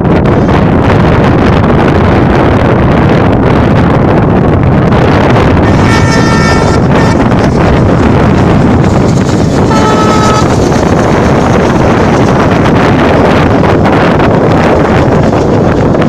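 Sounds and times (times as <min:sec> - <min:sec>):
wind buffeting microphone: 0:00.0 - 0:16.0
locomotive horn: 0:05.6 - 0:11.4.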